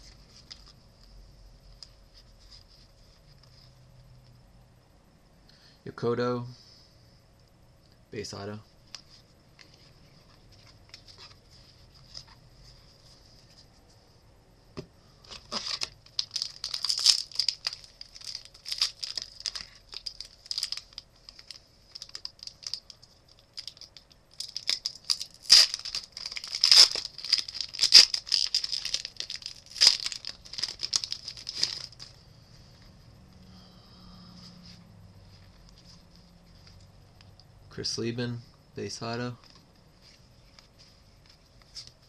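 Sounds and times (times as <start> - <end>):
card pack wrapper crinkling: 15.3 - 32.2.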